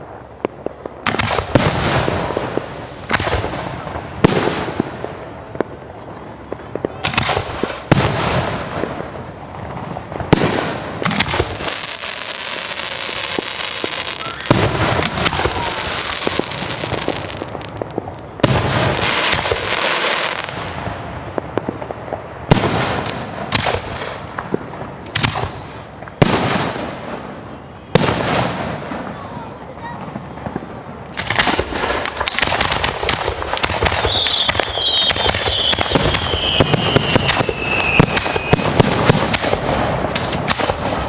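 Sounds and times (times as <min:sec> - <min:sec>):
firework shells bursting: 0:31.1 - 0:41.0.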